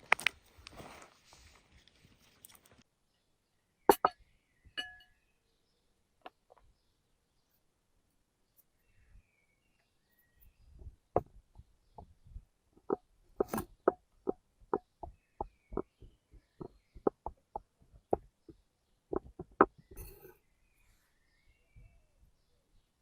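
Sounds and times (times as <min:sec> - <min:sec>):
rustling: 0:00.0 - 0:02.8.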